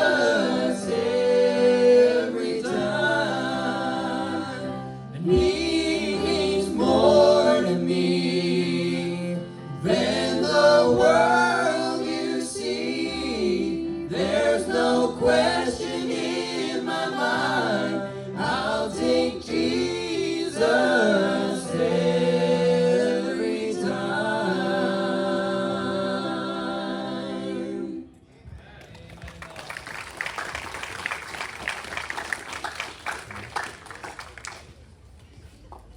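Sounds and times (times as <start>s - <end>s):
group singing gospel in harmony: 0.0s - 28.2s.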